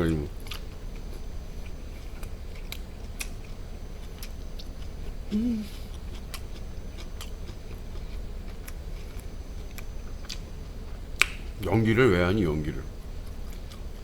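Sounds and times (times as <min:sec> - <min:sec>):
steady low hum: 0:00.0 - 0:14.0
person chewing meat: 0:00.3 - 0:11.4, 0:13.2 - 0:14.0
person humming mm: 0:05.3 - 0:06.0.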